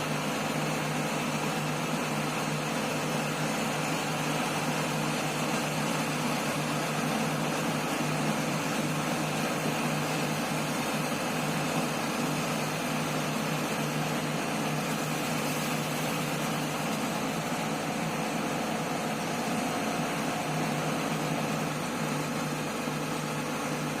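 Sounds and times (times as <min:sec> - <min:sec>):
excavator diesel engine humming: 0:00.0 - 0:24.0.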